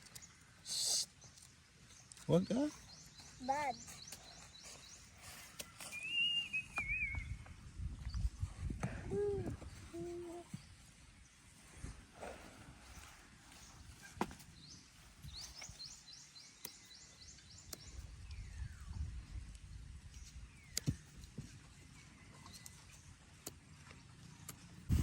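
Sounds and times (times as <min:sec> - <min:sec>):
bird chirping: 0:00.0 - 0:07.5, 0:14.5 - 0:19.4.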